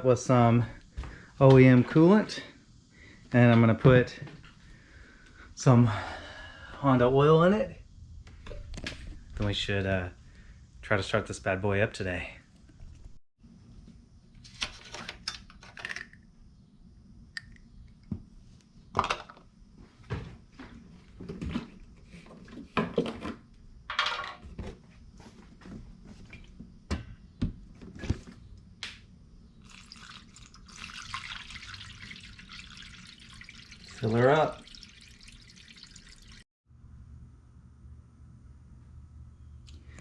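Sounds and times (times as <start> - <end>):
liquid pouring: 29.6 - 36.4.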